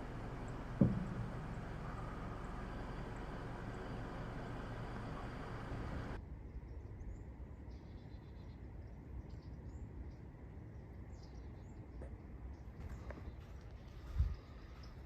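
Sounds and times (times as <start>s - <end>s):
low rumble: 0.0s - 7.6s
small birds chirping: 0.0s - 15.0s.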